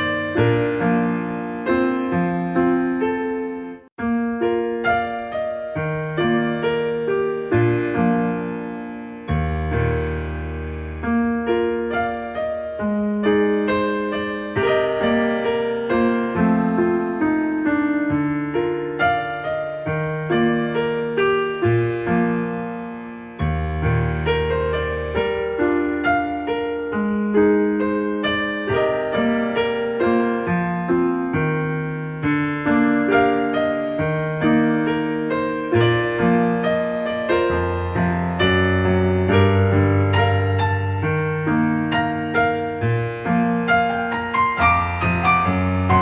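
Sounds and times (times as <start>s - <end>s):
solo piano music: 0.0s - 46.0s
deep piano bass note: 7.5s - 15.6s, 35.8s - 46.0s.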